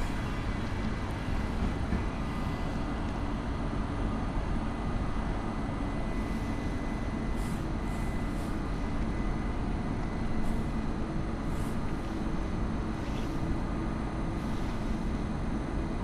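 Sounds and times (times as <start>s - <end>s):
electric train rolling slowly: 0.0s - 16.0s.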